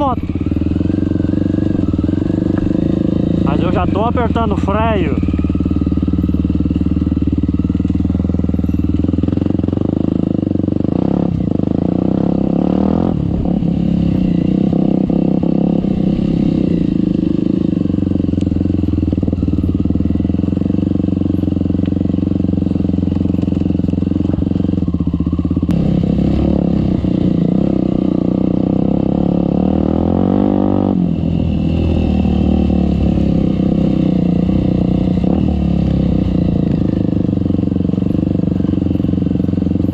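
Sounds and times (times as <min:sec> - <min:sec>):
motorcycle engine at low revs: 0:00.0 - 0:39.9.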